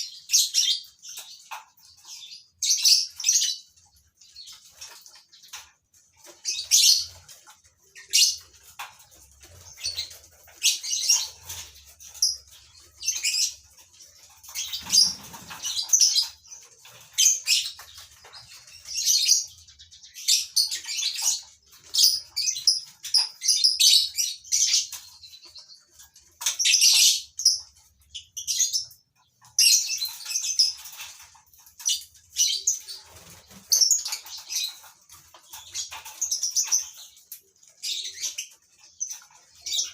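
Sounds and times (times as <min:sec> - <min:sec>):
lovebirds chirping and screeching: 0:00.0 - 0:39.9.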